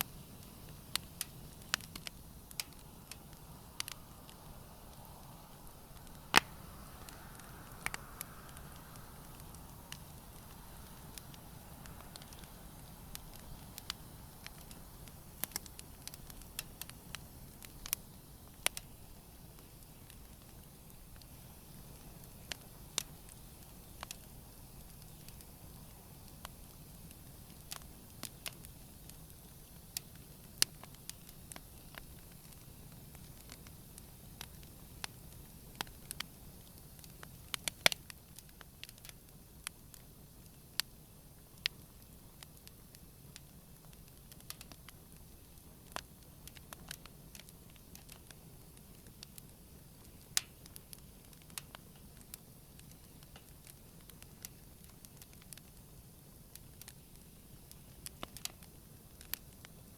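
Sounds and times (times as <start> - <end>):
campfire crackling and popping: 0.0 - 59.9
low steady hiss: 0.0 - 59.9.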